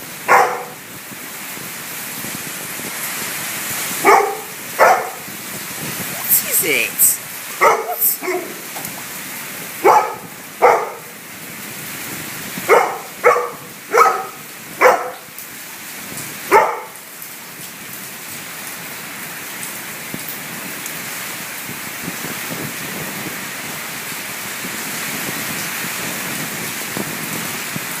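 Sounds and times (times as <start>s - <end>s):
steady rain: 0.0s - 28.0s
dog barking: 0.3s - 0.8s, 4.0s - 5.3s, 7.6s - 8.7s, 9.8s - 11.2s, 12.7s - 15.3s, 16.5s - 17.0s.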